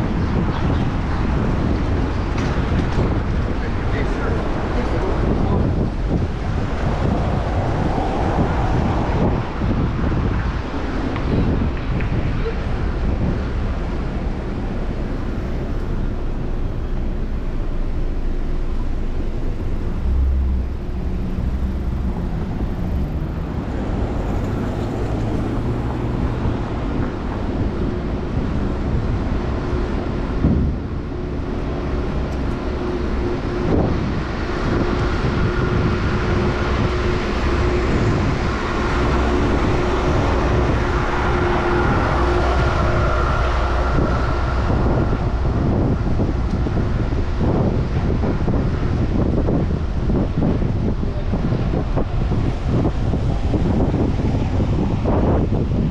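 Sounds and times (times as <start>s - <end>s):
city traffic: 0.0s - 55.9s
wind noise: 0.0s - 55.9s
steady hum: 12.4s - 55.9s.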